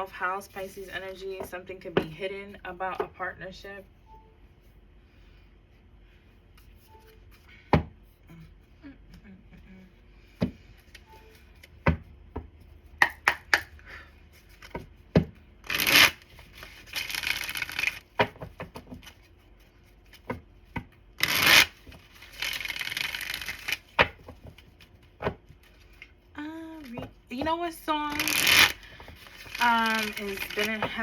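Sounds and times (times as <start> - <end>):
card shuffling: 15.6 - 31.0.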